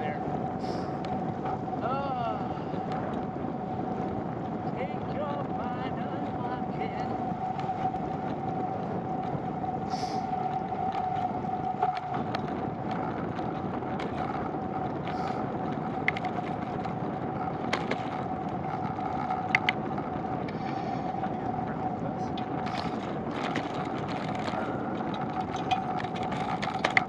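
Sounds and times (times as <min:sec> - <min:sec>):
bicycle tyre and wind noise: 0:00.0 - 0:27.0
bicycle clicks and rattles: 0:07.5 - 0:21.1, 0:22.3 - 0:27.0.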